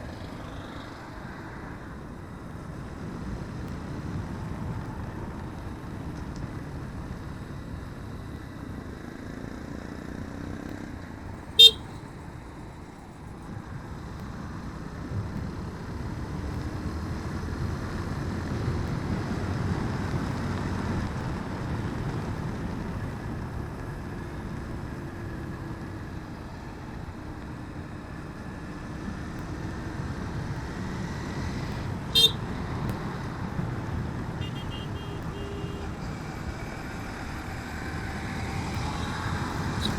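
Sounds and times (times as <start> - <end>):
motorcycle engine and road noise: 0.0 - 39.9
motorcycle horn toots: 11.6 - 12.0, 32.1 - 32.4, 34.4 - 36.0.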